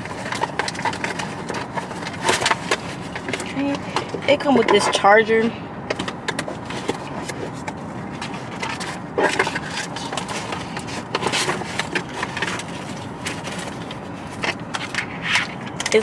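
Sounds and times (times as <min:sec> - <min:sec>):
box and packaging handled: 0:00.0 - 0:16.0
car air conditioning blower: 0:00.0 - 0:16.0.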